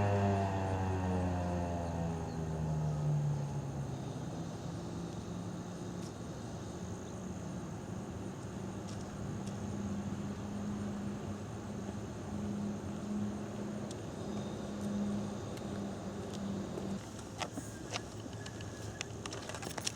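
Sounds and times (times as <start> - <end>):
vehicle engine idling: 0.0 - 7.0
faint high steady tone: 9.6 - 17.0.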